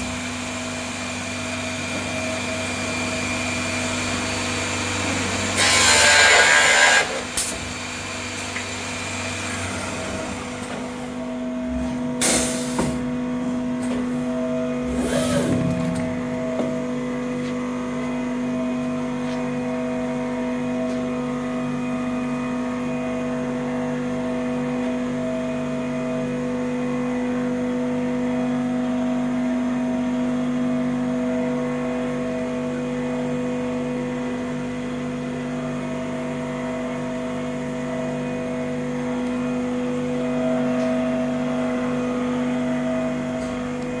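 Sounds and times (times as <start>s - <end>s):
machine humming: 13.0s - 18.7s.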